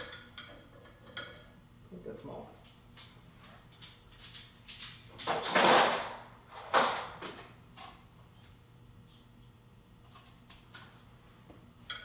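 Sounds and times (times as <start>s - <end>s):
metal tools clattering: 3.8s - 7.2s.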